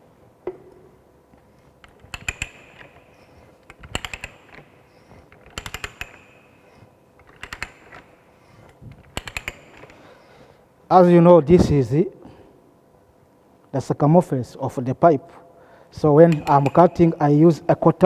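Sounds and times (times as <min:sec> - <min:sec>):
ratchet clicking on metal pipe: 0:01.8 - 0:10.0, 0:16.1 - 0:17.5.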